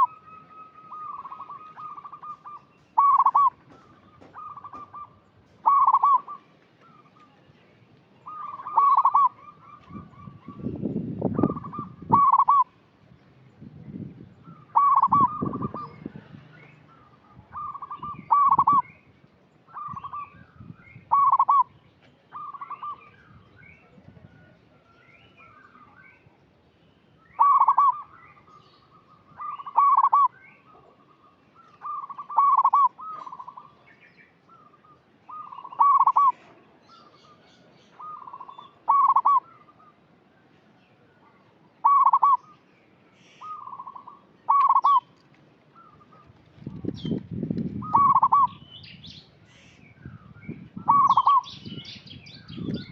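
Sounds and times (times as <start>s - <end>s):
dove cooing: 0.0s - 7.1s, 8.3s - 10.7s, 11.4s - 12.7s, 14.7s - 16.0s, 17.5s - 18.8s, 21.1s - 21.7s, 27.4s - 28.1s, 29.4s - 33.8s, 35.3s - 36.6s, 38.0s - 39.7s, 41.8s - 42.5s, 43.4s - 45.1s, 47.8s - 48.6s, 50.8s - 51.5s
small birds chirping: 0.0s - 52.9s.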